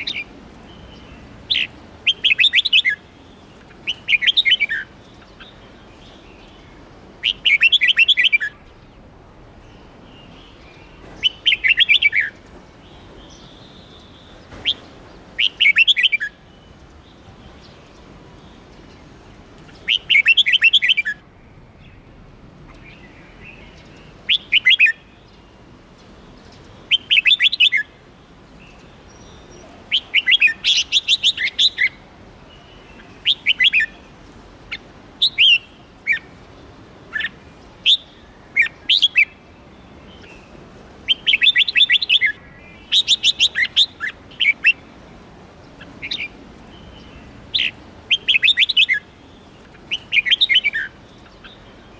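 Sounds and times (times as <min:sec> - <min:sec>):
bulbul whistled song: 0:37.2 - 0:39.4.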